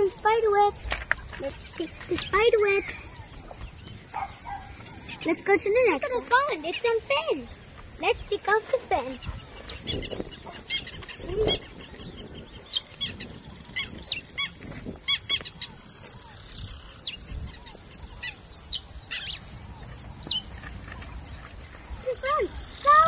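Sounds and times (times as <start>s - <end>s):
small birds chirping: 0.0s - 23.0s
steady high-pitched hiss: 0.0s - 23.0s.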